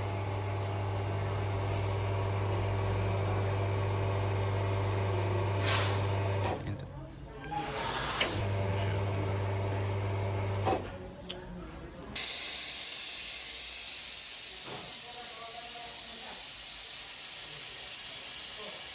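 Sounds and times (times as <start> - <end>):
coffee machine humming: 0.0 - 6.6, 8.2 - 10.8, 12.2 - 18.9
steam hissing: 12.2 - 18.9.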